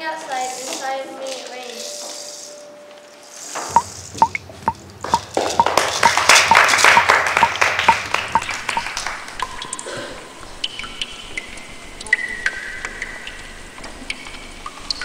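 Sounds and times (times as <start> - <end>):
pinging percussion beat: 3.7 - 9.7.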